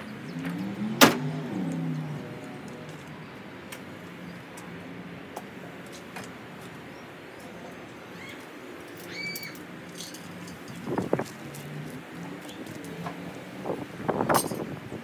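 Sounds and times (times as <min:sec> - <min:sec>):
bird whistled calls: 0:09.1 - 0:09.6.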